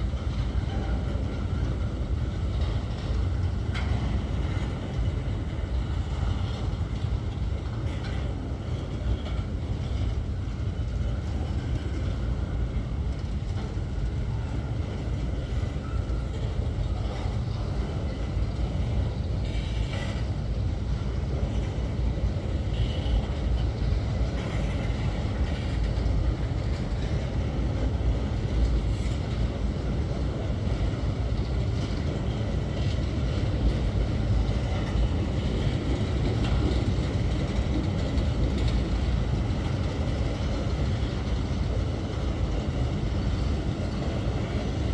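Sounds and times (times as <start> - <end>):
freight train wheels rumbling: 0.0 - 44.9.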